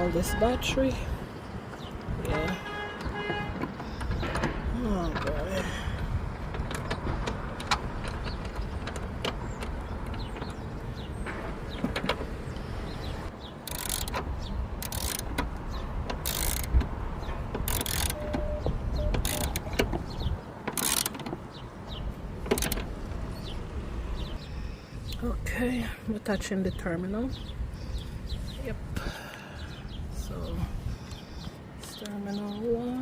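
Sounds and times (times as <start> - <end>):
tools and metal parts clicking: 13.6 - 21.5, 22.4 - 22.9.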